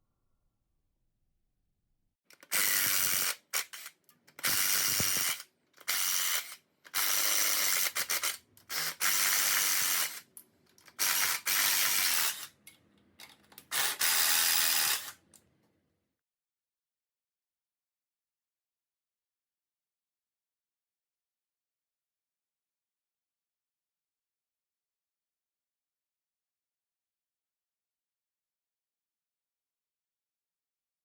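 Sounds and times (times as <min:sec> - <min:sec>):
pneumatic air tool whirring: 0:02.4 - 0:10.3, 0:10.9 - 0:12.5, 0:13.7 - 0:15.2.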